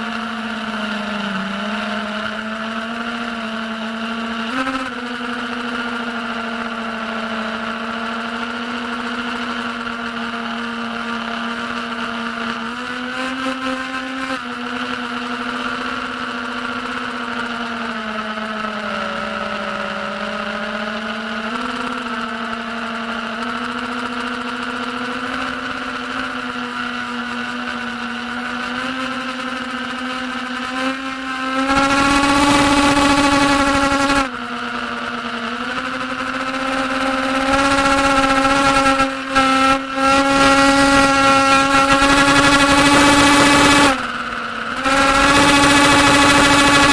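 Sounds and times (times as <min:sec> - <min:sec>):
quadcopter motors whining: 0:00.0 - 0:46.9.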